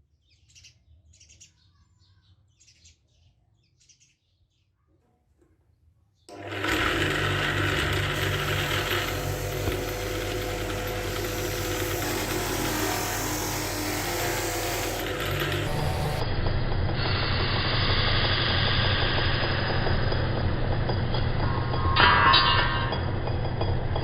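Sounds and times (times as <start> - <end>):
faint bird chirps: 0.3 - 5.0
power tool motor running: 6.3 - 23.3.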